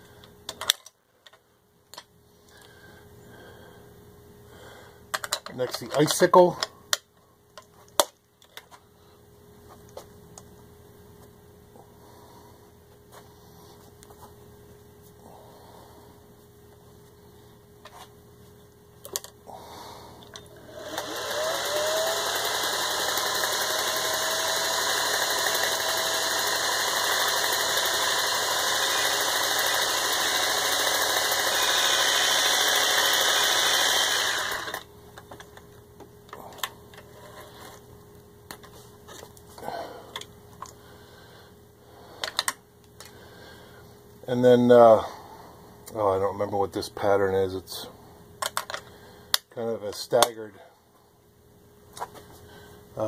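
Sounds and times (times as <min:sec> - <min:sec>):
handling clicks and knocks: 0:05.1 - 0:06.7
sewing machine stitching: 0:20.7 - 0:34.8.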